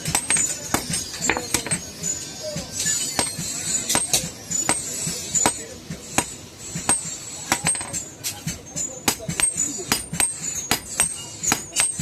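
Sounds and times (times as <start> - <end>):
hammer striking iron on anvil: 0.0 - 1.9, 2.8 - 12.0.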